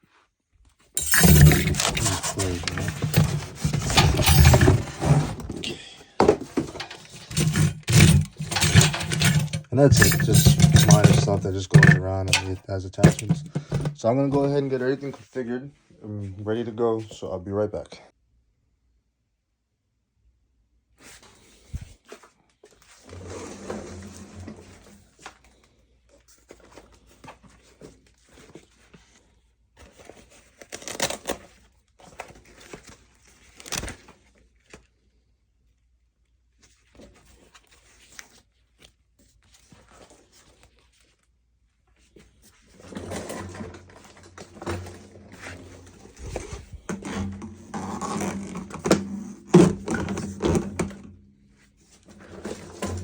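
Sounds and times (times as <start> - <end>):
objects knocking and clicking: 1.0 - 14.1, 46.2 - 51.2.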